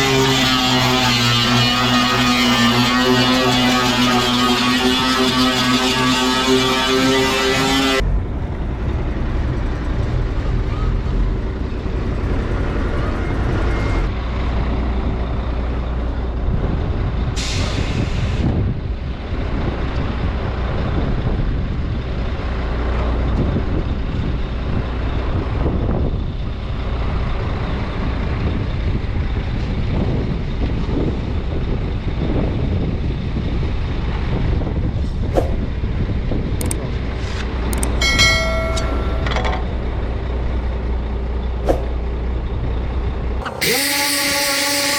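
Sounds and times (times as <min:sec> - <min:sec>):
truck engine humming: 0:00.0 - 0:17.5, 0:18.4 - 0:44.9
sharp clicks: 0:36.6 - 0:36.8, 0:37.7 - 0:38.0
metallic clang: 0:38.0 - 0:39.8.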